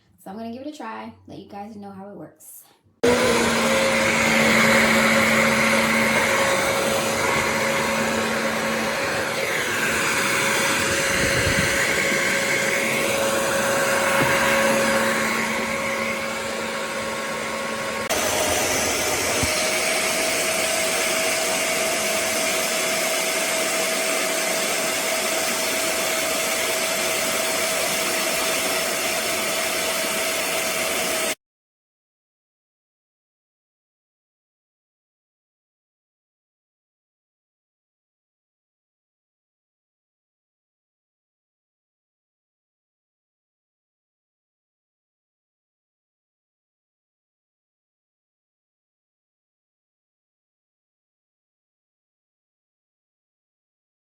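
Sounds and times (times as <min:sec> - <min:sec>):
carpet cleaner motor whine: 0:03.0 - 0:31.4.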